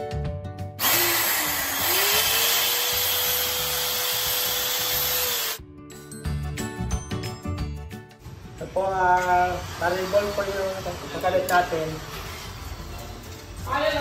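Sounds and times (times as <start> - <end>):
background music: 0.0 - 14.0
electric drill boring: 0.8 - 5.6.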